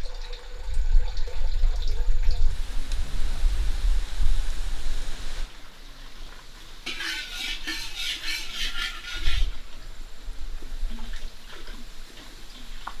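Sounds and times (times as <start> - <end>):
utensil scraping in a bowl: 6.8 - 9.6.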